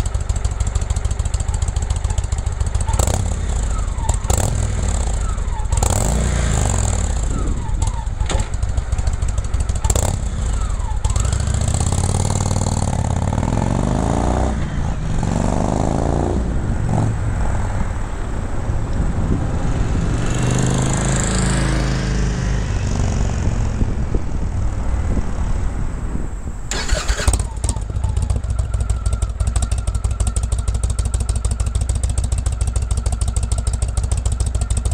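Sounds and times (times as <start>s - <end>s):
motorcycle engine idling: 0.0s - 5.9s, 6.6s - 13.2s, 26.7s - 34.9s
motorcycle throttle blips: 26.7s - 34.9s.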